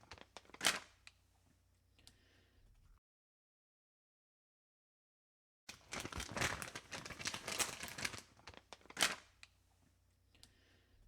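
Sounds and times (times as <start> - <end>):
wrapper crinkling and rustling: 0.0 - 0.9, 5.7 - 9.5.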